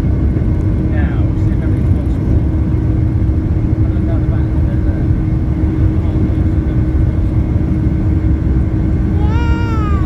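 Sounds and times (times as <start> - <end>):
airliner cabin rumble: 0.0 - 10.0
high-pitched cry: 9.1 - 10.0.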